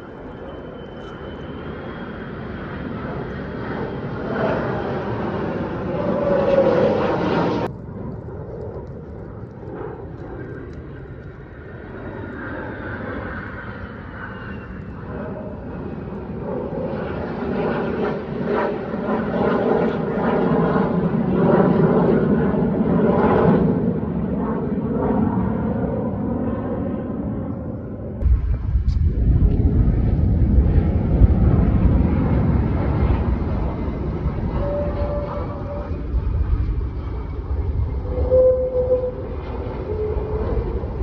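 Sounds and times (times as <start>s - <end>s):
faint falling whine: 0.0s - 4.3s
fighter jet flying overhead: 0.0s - 41.0s.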